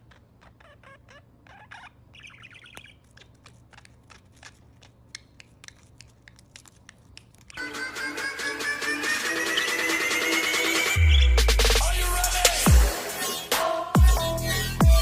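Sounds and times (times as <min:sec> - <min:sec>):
parrot chirping softly: 0:00.0 - 0:07.6
music: 0:07.6 - 0:15.0.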